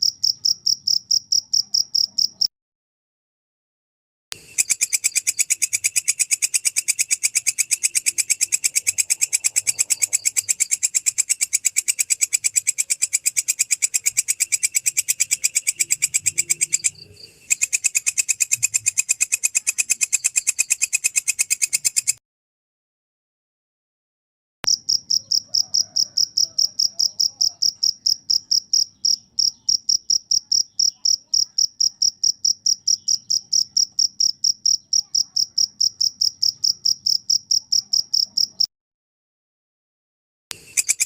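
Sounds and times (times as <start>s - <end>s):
insect chirping: 0.0s - 2.5s, 4.4s - 22.2s, 24.7s - 38.7s, 40.6s - 41.0s.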